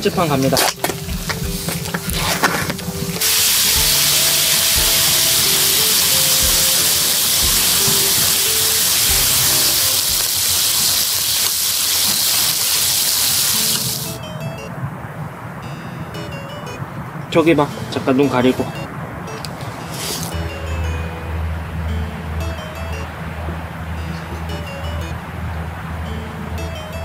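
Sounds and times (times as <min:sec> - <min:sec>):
background music: 0:00.0 - 0:11.4, 0:12.0 - 0:27.0
food sizzling on a hot pan: 0:03.2 - 0:14.2.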